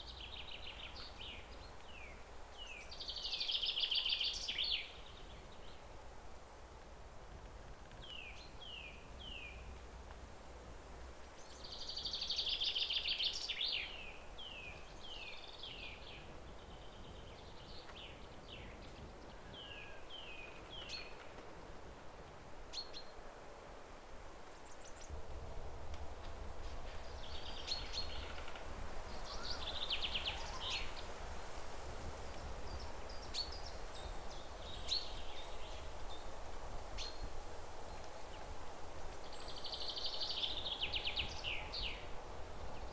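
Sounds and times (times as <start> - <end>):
songbirds chirping and trilling: 24.6 - 31.4, 32.1 - 38.5, 39.1 - 42.9
low background rumble: 25.1 - 31.0.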